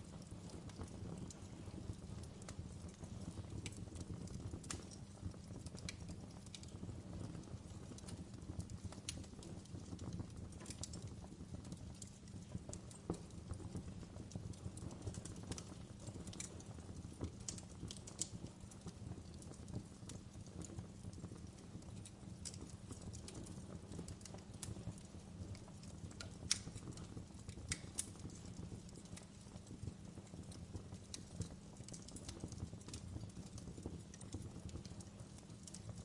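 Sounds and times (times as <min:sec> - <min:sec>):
wood fire crackling and popping: 0:00.0 - 0:36.0.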